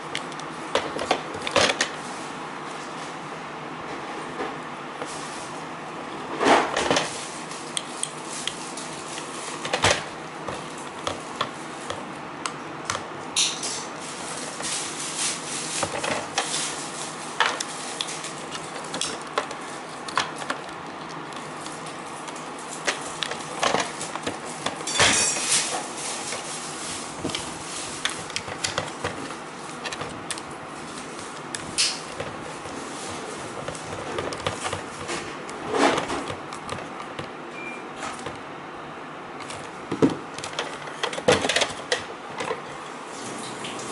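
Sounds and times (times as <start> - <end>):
plastic parts clicking and rattling: 22.8 - 26.5, 39.4 - 42.6.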